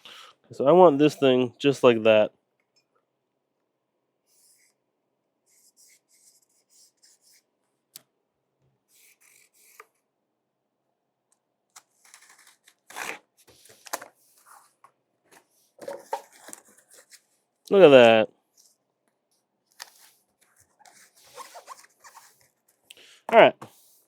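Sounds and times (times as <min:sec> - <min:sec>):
cardboard rustling and scraping: 0:11.8 - 0:17.4, 0:19.8 - 0:22.6.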